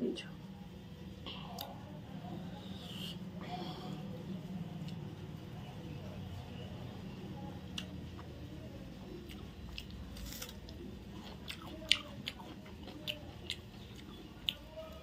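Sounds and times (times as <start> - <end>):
person chewing food: 7.7 - 8.4, 9.0 - 15.0.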